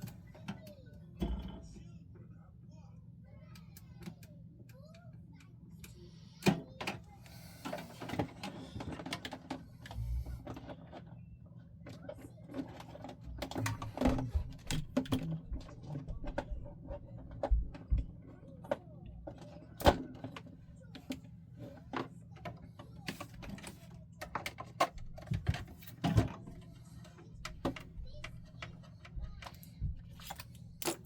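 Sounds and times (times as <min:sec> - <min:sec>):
steady low hum: 0:00.0 - 0:11.9
clicks and knocks of small parts: 0:27.0 - 0:31.0.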